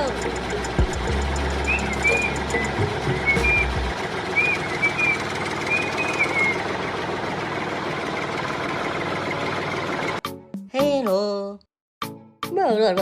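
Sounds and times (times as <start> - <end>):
engine running: 0.0 - 10.2
short high chirps: 1.6 - 3.8, 4.4 - 6.6.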